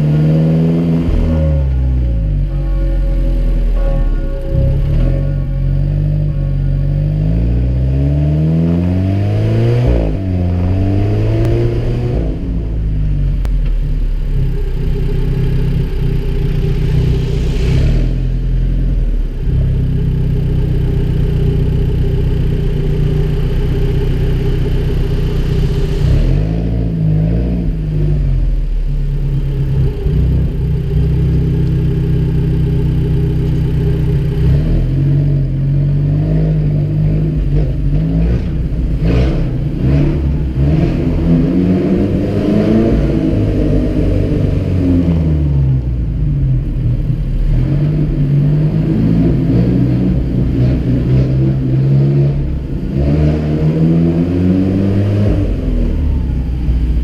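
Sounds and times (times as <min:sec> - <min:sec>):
car engine revving and idling: 0:00.0 - 0:57.0.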